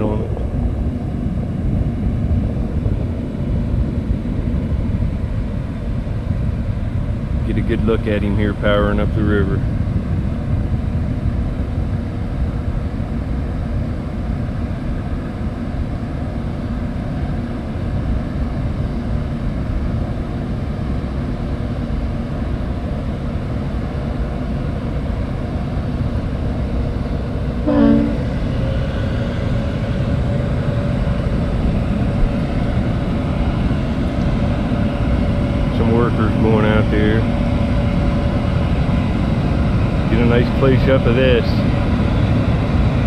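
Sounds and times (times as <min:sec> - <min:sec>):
diesel engines rumbling: 0:00.0 - 0:43.0
faint steady whine: 0:00.0 - 0:43.0
brief pitched sound: 0:27.7 - 0:28.4.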